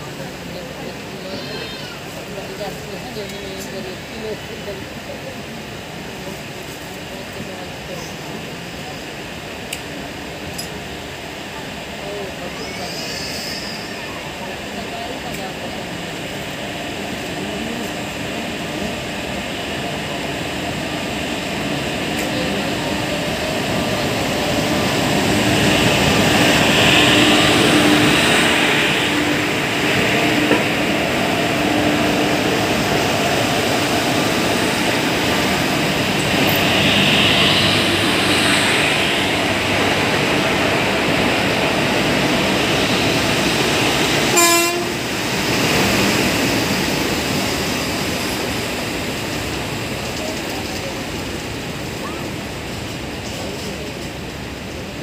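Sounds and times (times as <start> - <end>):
train wheels rumbling on rails: 0.0 - 55.0
rushing noise: 16.3 - 53.0
train horn toot: 44.3 - 45.1.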